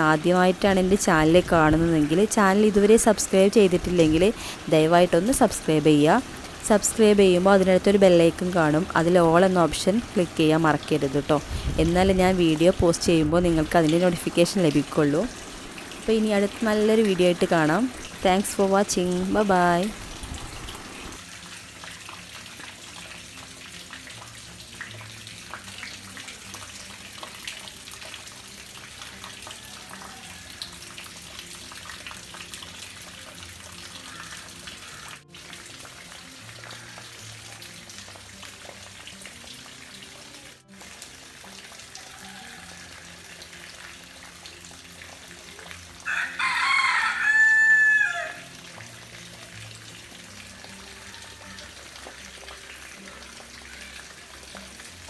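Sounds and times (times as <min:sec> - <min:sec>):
soft background music: 0:00.0 - 0:55.0
rooster crowing: 0:42.0 - 0:43.2, 0:46.0 - 0:48.5.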